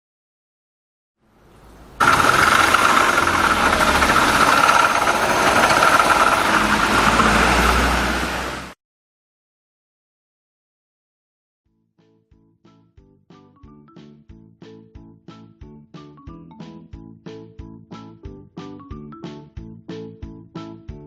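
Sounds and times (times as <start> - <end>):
small engine rumble: 1.6 - 8.8
transmission rattling whine: 1.9 - 8.8.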